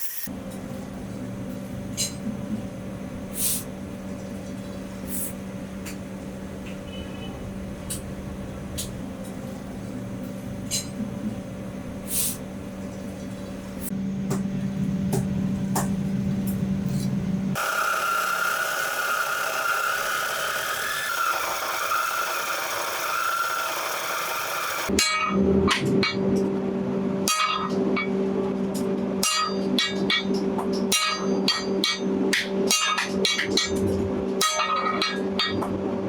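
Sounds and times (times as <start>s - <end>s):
power tool whirring: 17.6s - 24.9s.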